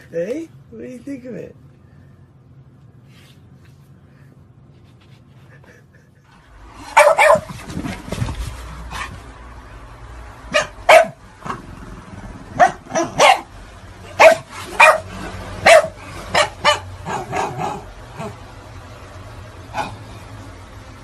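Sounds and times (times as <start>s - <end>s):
dog barking: 6.8s - 7.6s, 10.5s - 11.2s, 12.6s - 13.5s, 14.1s - 18.4s, 19.7s - 20.0s.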